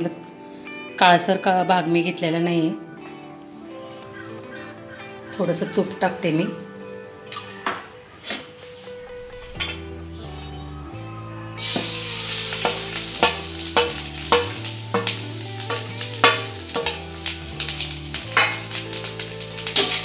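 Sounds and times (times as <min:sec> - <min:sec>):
soft instrumental music: 0:00.0 - 0:20.0
coconut sizzling in hot fat: 0:11.6 - 0:20.0.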